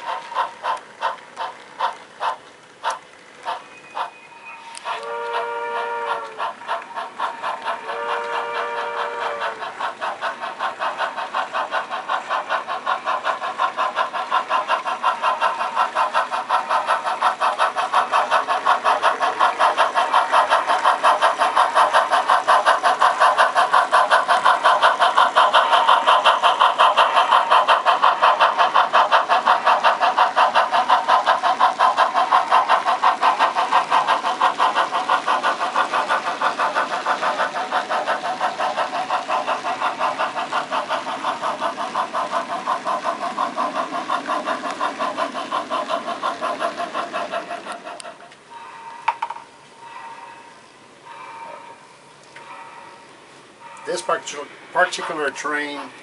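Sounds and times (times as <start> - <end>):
model steam locomotive chuffing: 0.0 - 56.0.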